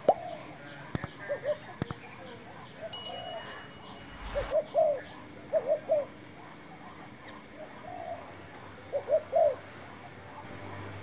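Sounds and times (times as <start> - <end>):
dove cooing: 0.0 - 0.6, 1.2 - 1.8, 2.8 - 6.2, 7.5 - 9.6
steady high-pitched hiss: 0.0 - 11.0.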